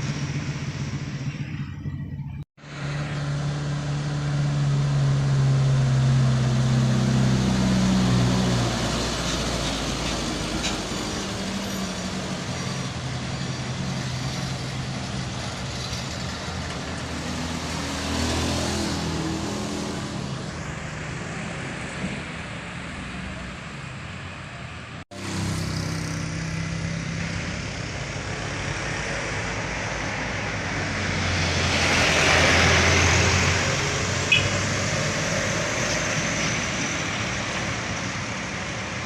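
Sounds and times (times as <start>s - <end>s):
truck diesel engine climbing: 0.0s - 39.0s
vehicle passing: 13.6s - 39.0s.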